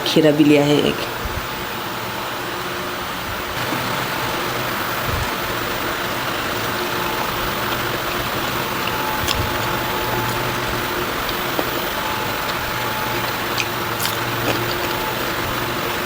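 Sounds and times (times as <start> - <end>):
faint thin whine: 4.9 - 16.0.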